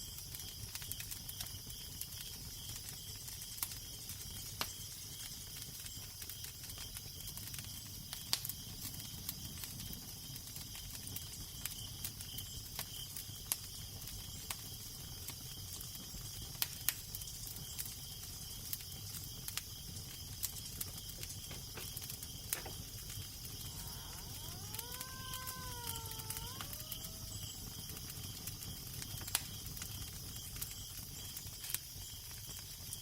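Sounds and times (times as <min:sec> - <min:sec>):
wood fire crackling: 0:00.0 - 0:33.0
low rumble of wind: 0:20.9 - 0:28.9.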